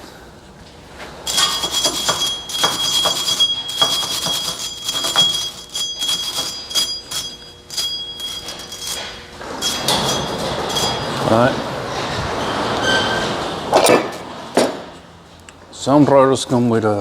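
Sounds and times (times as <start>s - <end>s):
metal scraping and clicking: 1.3s - 14.8s
brake rotor metallic ringing: 1.3s - 15.0s.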